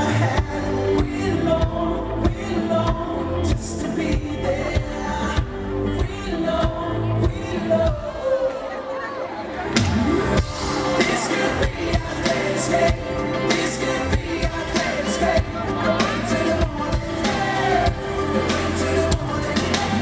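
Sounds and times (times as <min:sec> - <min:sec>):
bass line: 0:00.0 - 0:08.2, 0:09.7 - 0:20.0
pop-rock band playing: 0:00.0 - 0:08.7, 0:09.5 - 0:20.0
person singing: 0:00.0 - 0:20.0
drums beating: 0:09.8 - 0:20.0.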